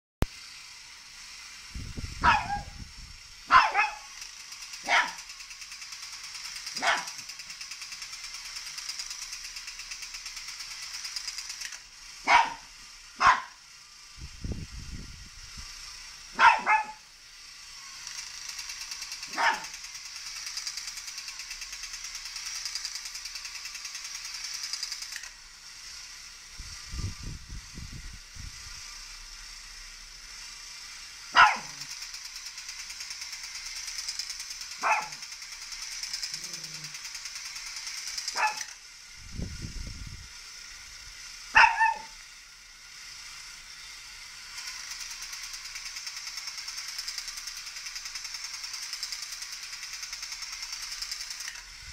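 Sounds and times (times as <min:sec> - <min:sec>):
high-pitched motor whir: 0:00.2 - 0:51.9
dog barking: 0:02.2 - 0:02.8, 0:03.5 - 0:04.1, 0:04.8 - 0:05.2, 0:06.8 - 0:07.2, 0:12.3 - 0:13.6, 0:16.4 - 0:17.0, 0:19.3 - 0:19.7, 0:31.4 - 0:31.9, 0:34.8 - 0:35.2, 0:38.3 - 0:38.7, 0:41.6 - 0:42.2.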